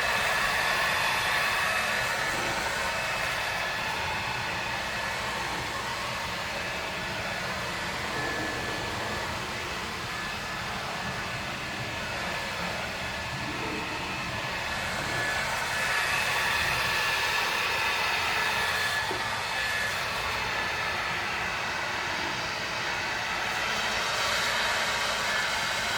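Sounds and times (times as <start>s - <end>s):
high steady whine: 0.0s - 25.9s
pressure washer spraying water: 0.0s - 25.9s.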